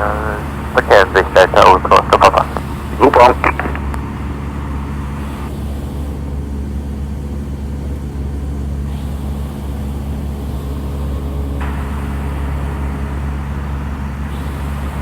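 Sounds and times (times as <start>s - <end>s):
light aircraft engine drone: 0.0s - 15.0s.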